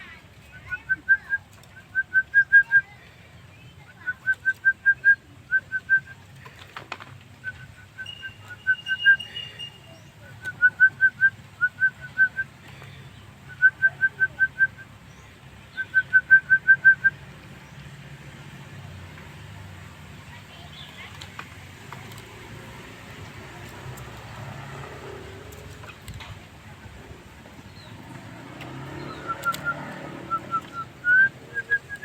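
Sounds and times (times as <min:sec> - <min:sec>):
bird whistling song: 0:00.5 - 0:03.0, 0:03.6 - 0:06.2, 0:07.3 - 0:17.2, 0:28.6 - 0:32.0.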